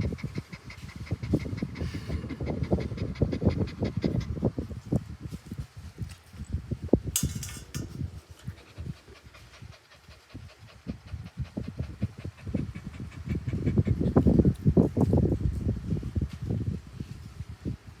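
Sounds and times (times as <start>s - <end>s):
puppy panting: 0.0s - 4.7s, 7.3s - 14.6s.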